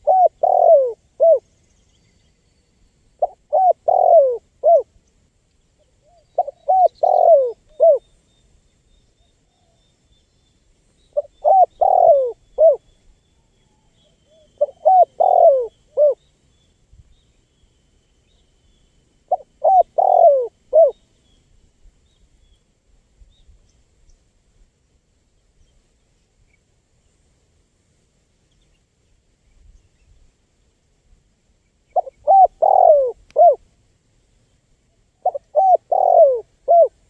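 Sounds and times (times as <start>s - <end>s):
dove cooing: 0.0s - 1.4s, 3.2s - 4.9s, 6.4s - 8.0s, 11.2s - 12.8s, 14.3s - 16.2s, 19.3s - 21.0s, 32.0s - 33.6s, 35.2s - 37.0s.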